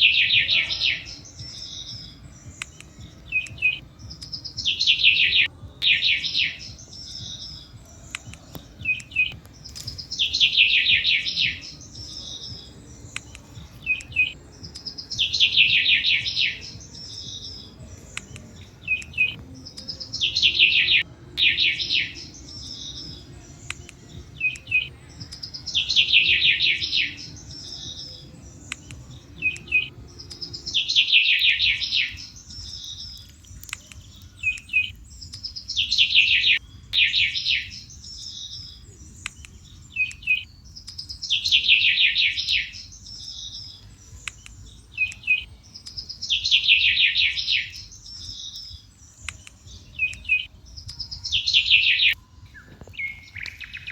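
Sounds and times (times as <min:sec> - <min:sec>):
campfire crackling: 0:00.0 - 0:41.3
songbird trilling: 0:00.0 - 0:53.9.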